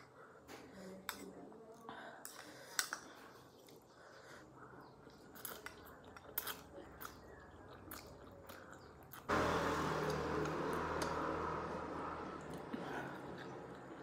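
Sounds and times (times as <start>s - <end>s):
chewing noodles: 4.8s - 9.3s, 10.0s - 14.0s.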